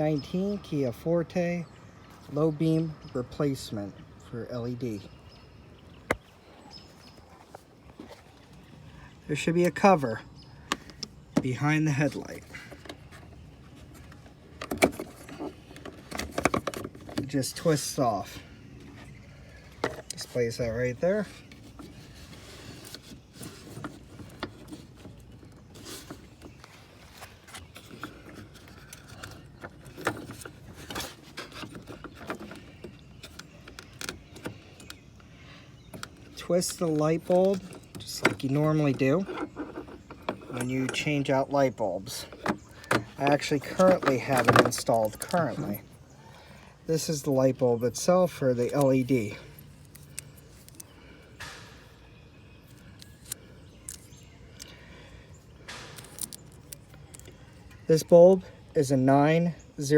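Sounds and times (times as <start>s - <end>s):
rustle of handling: 6.4s - 52.0s, 52.6s - 58.2s.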